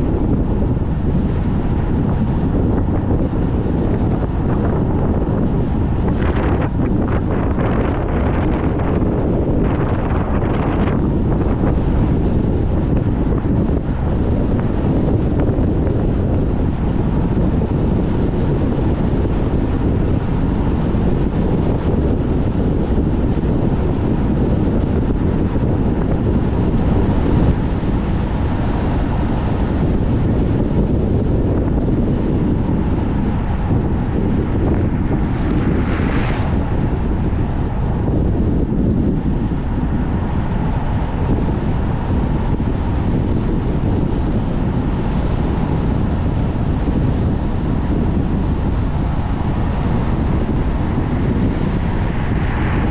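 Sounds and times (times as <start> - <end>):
wind buffeting microphone: 0.0 - 52.9
car driving: 24.7 - 52.9.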